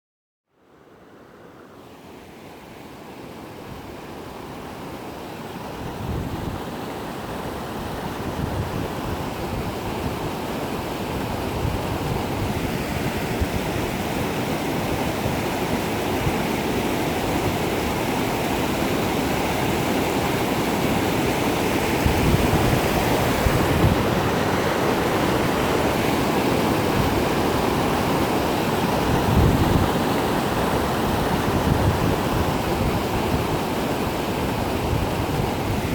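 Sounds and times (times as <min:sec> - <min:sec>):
waterfall rushing: 0:11.9 - 0:35.9.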